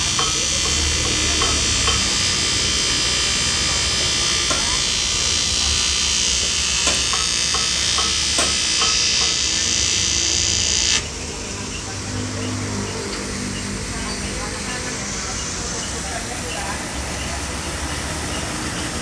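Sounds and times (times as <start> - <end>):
high-pitched electric machine hiss: 0.0 - 19.0.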